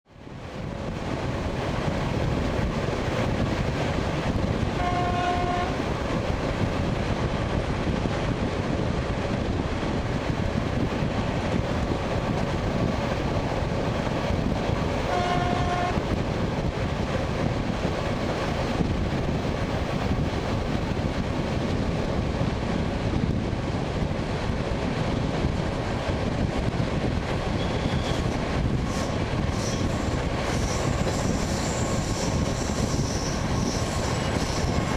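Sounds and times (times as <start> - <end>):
train wheels rumbling on rails: 0.1 - 34.9
short high train horn: 4.7 - 5.8, 15.1 - 16.1.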